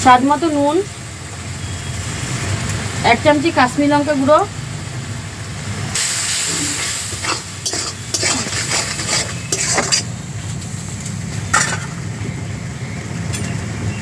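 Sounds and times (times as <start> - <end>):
masala sizzling in a pan: 0.0 - 14.0
metal spatula scraping a pan: 6.5 - 10.2.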